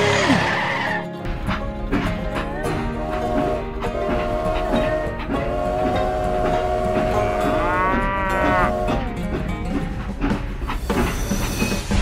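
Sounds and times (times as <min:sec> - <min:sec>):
cow mooing: 0:06.9 - 0:09.2
toy train running on track: 0:08.5 - 0:12.0.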